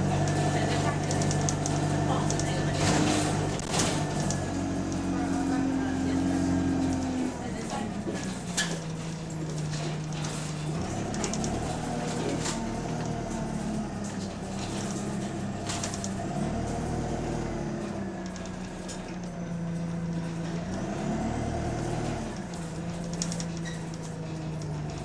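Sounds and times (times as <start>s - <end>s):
bus engine with exhaust leak: 0.0s - 25.0s.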